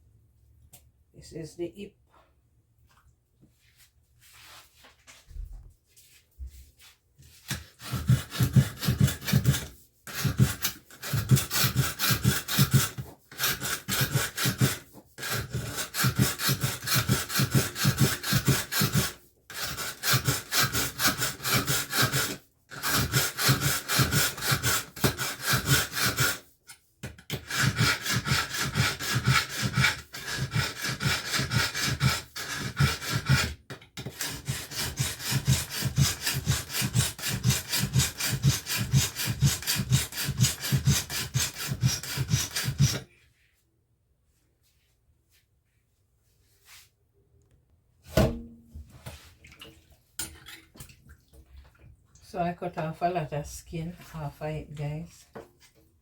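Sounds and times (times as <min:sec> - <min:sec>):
knife scraping on sharpener: 0:07.4 - 0:43.0.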